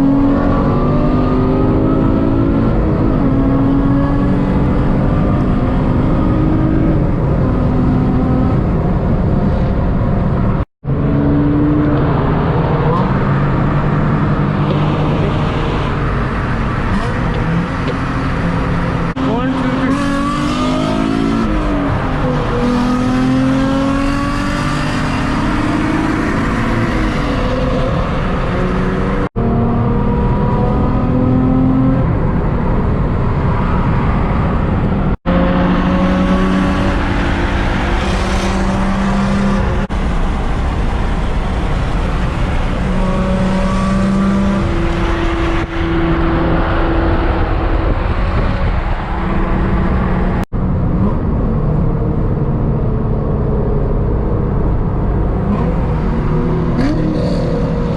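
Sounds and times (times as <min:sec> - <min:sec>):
car engine accelerating: 0:00.0 - 0:57.9
road noise: 0:00.0 - 0:57.9.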